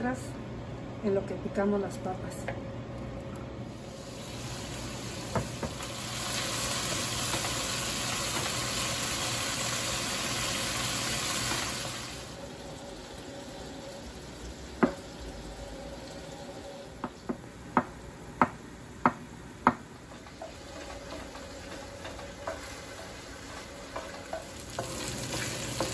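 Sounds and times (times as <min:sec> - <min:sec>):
sausage sizzling in a pan: 0:03.7 - 0:15.4, 0:20.1 - 0:25.9
wooden spoon stirring: 0:20.1 - 0:25.9.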